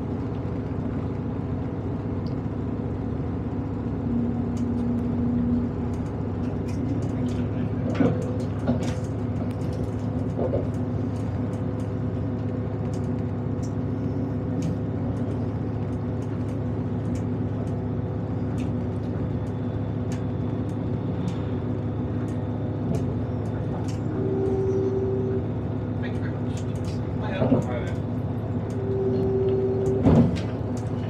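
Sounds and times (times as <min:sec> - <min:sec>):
diesel train running: 0:00.0 - 0:31.0
light ticks and rattles: 0:14.4 - 0:21.4.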